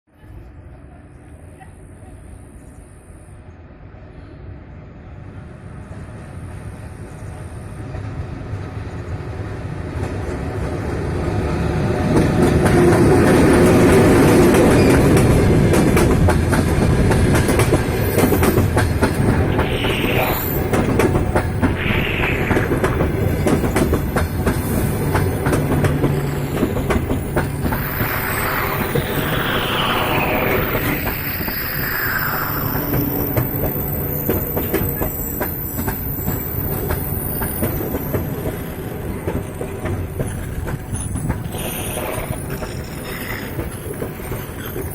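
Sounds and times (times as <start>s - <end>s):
train rolling through station: 0.1s - 44.9s
wheels clacking over rail joints: 12.0s - 30.0s
wheel squeals: 26.1s - 38.4s.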